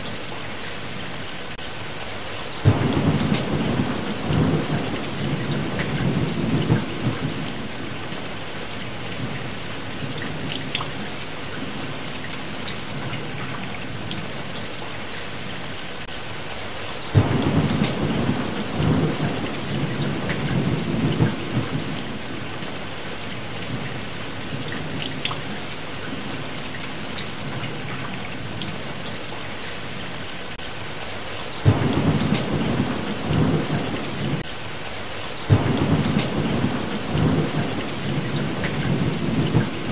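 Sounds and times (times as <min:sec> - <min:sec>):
heavy rain: 0:00.0 - 0:39.9
thunder rumbling: 0:02.6 - 0:08.1, 0:17.2 - 0:22.8, 0:31.6 - 0:34.4, 0:35.5 - 0:39.9.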